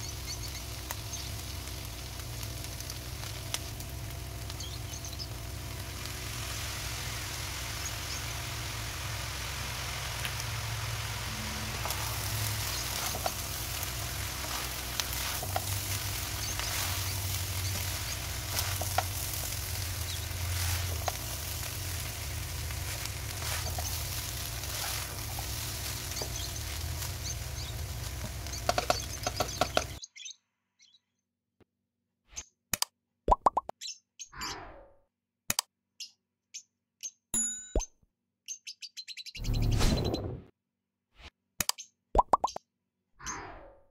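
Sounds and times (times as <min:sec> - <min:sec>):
rice sizzling in a wok: 0:00.0 - 0:30.0
spatula scraping and knocking pan: 0:11.7 - 0:27.1, 0:28.1 - 0:30.0.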